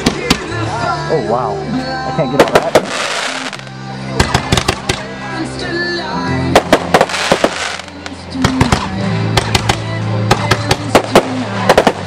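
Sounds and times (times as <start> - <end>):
music with long held notes: 0.0 - 12.0
firework shells bursting: 2.4 - 5.0, 6.6 - 12.0.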